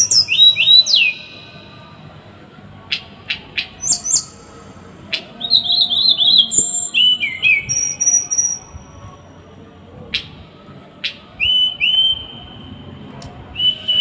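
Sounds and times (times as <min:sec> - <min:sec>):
songbird singing harsh calls: 0:00.0 - 0:01.5, 0:02.9 - 0:08.7.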